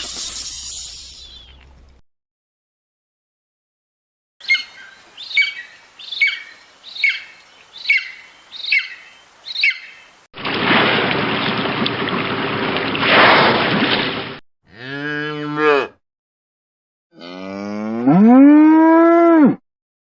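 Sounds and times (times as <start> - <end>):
cow mooing: 14.7 - 16.0, 17.1 - 19.6.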